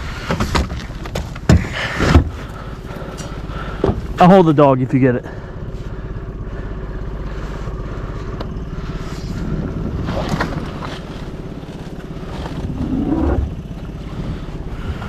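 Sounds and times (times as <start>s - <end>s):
outboard motor chugging: 0.0s - 15.0s
brief rising whine: 12.4s - 13.6s.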